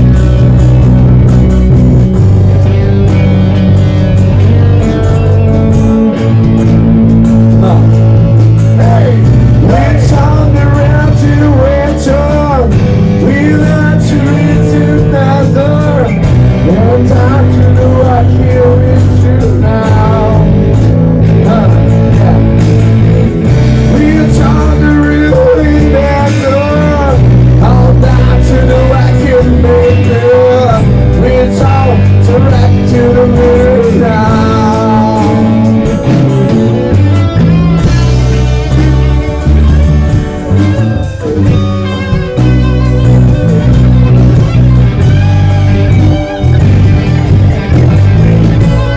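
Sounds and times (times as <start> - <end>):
live band playing: 0.0 - 48.9
person singing: 7.4 - 36.3.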